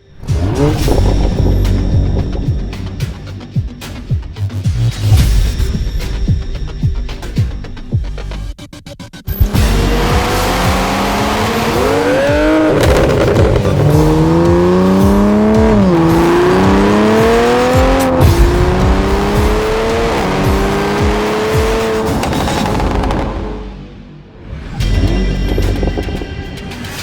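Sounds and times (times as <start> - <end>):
car engine accelerating: 0.1 - 3.2, 9.3 - 24.2.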